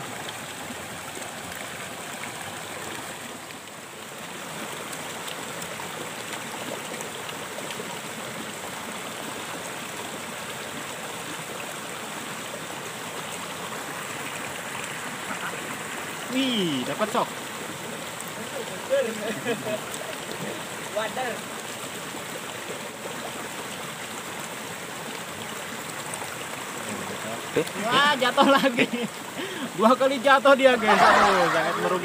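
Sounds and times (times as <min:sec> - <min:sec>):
stream splashing down a cascade: 0:00.0 - 0:32.0.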